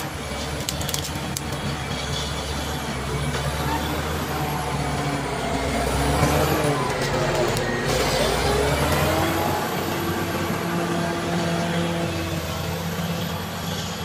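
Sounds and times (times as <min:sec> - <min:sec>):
bulldozer diesel engine working: 0:00.0 - 0:14.0
thin high whine: 0:01.7 - 0:14.0.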